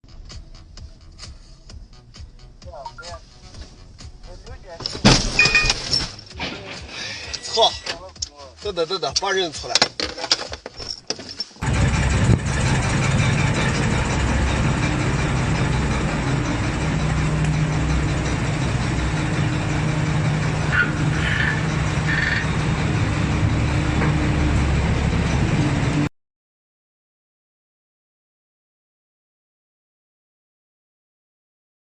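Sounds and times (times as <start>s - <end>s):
low hum: 0.0s - 7.8s, 11.6s - 26.1s
car engine and road noise: 0.0s - 26.1s.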